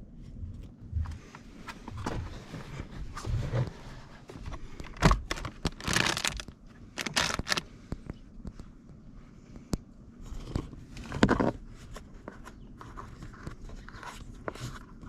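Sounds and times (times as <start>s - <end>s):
plastic parts clicking: 4.8s - 7.7s
scraping rustle: 7.0s - 7.6s.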